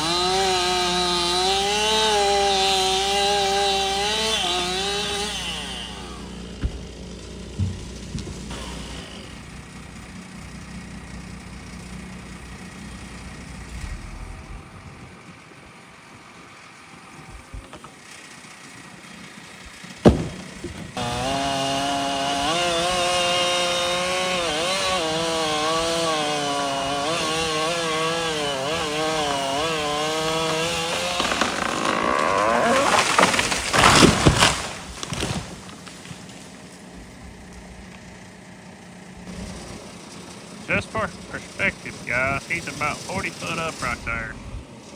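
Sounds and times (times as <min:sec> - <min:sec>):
chainsaw cutting wood: 0:00.0 - 0:14.3, 0:17.3 - 0:44.9
heavy cracks and thuds: 0:20.0 - 0:21.0, 0:30.9 - 0:35.9.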